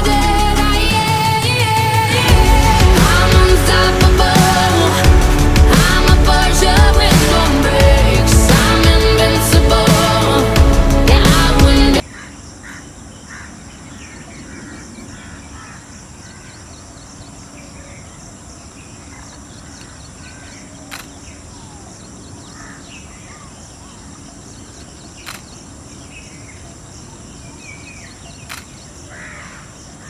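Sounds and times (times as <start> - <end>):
bird chirps: 12.0 - 30.0
insects droning: 12.0 - 30.0
sharp clicks: 20.9 - 21.2, 25.2 - 25.5, 28.5 - 28.8.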